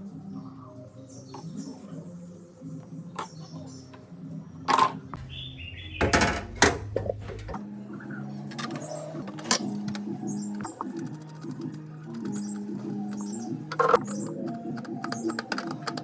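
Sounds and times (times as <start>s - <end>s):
soft background music: 0.0s - 16.0s
hand tools clicking and clattering: 8.5s - 16.0s.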